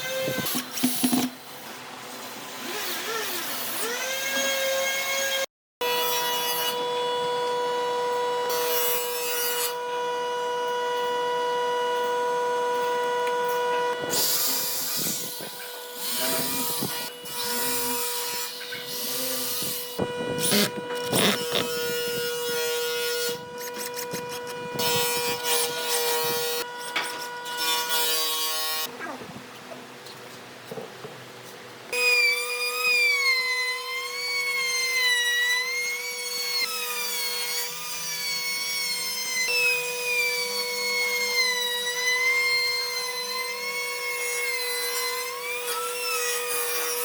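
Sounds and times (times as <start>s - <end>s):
power tool whining: 2.5s - 28.9s
tool rasping wood: 13.7s - 28.9s.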